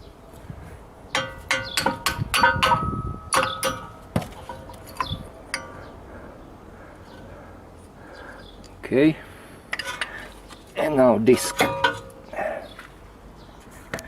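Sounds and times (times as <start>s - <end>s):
metal tools clinking: 11.2s - 12.3s.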